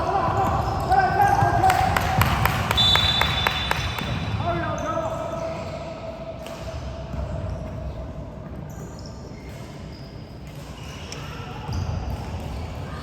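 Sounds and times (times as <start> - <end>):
basketball bouncing on court: 0.0 - 4.6.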